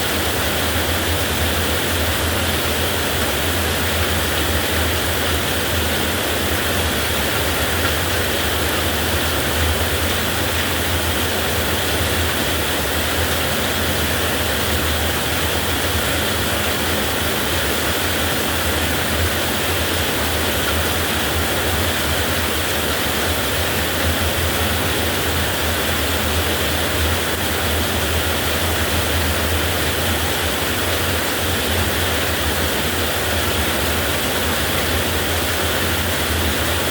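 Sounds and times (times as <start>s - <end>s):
heavy rain falling: 0.0s - 36.9s.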